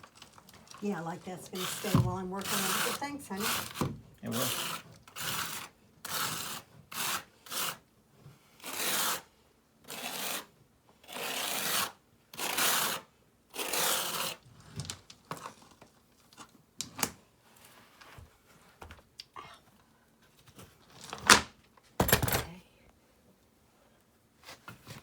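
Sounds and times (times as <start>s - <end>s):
rough masonry scraping: 0.0s - 7.8s.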